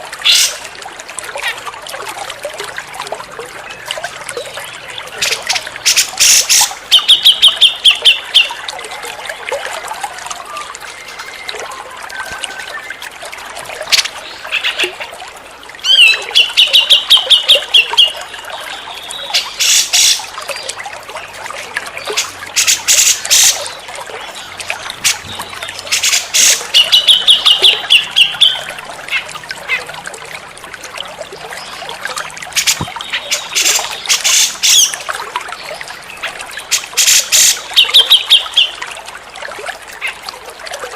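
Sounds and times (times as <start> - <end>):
trickle of running water: 0.0 - 40.9
harsh rattling bird calls: 24.4 - 29.8, 32.5 - 35.0.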